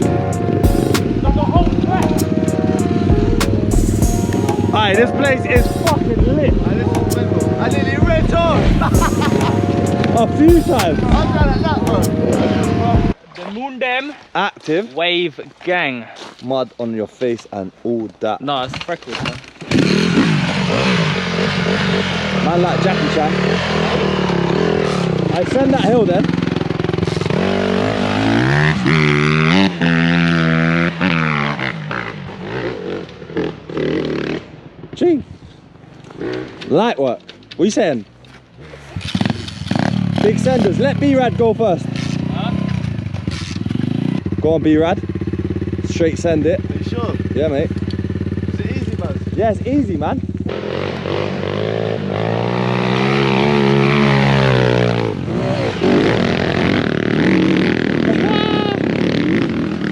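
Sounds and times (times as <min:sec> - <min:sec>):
small motorbike engine revving: 0:00.0 - 0:13.2, 0:19.2 - 0:34.5, 0:38.6 - 0:44.4, 0:50.3 - 0:59.9.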